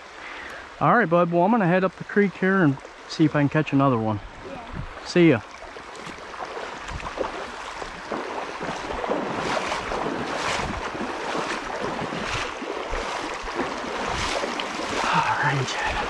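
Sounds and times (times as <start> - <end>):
creek water rushing: 0.0 - 16.0
splashing footsteps in water: 4.7 - 16.0.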